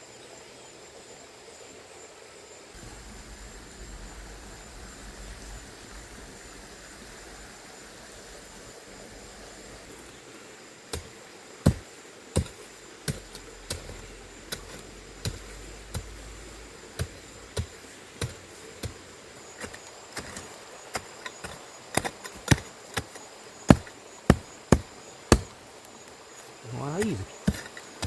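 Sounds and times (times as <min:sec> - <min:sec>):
hoe chopping into ground: 0:10.9 - 0:25.6, 0:26.7 - 0:27.9.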